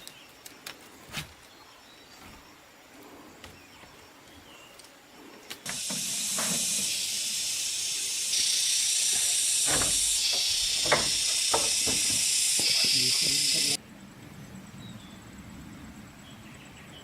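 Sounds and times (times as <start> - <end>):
steady hiss: 2.4 - 13.8.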